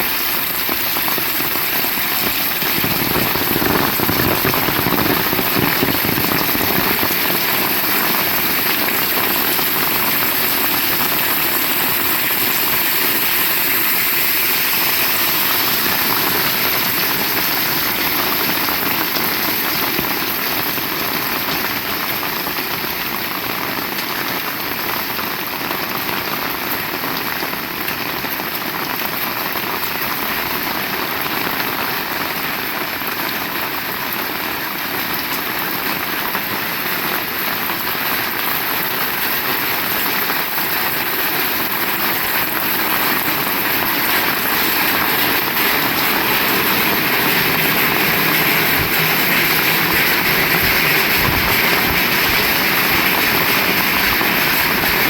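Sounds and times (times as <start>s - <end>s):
heavy rain on hard surfaces: 0.0s - 55.0s.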